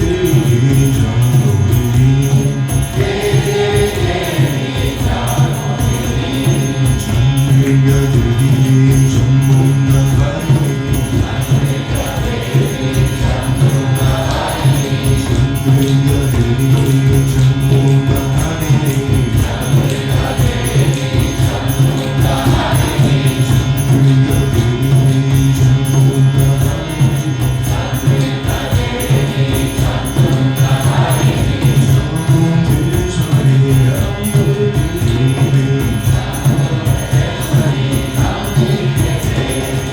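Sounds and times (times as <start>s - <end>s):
hand percussion beat: 0.0s - 39.9s
voices chanting: 0.0s - 39.9s.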